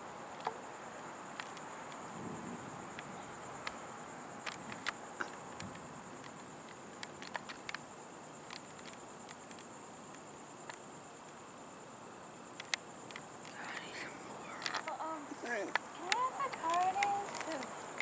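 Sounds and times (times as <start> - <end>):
insects chirring: 0.0 - 18.0
sharp ticks: 1.3 - 2.0, 4.4 - 7.8, 12.5 - 13.9, 14.6 - 18.0.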